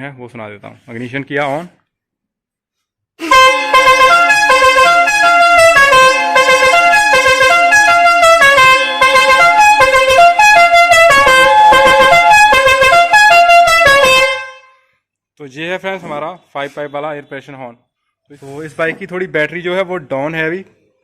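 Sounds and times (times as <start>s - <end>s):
musical air horn playing tune: 3.2s - 14.9s.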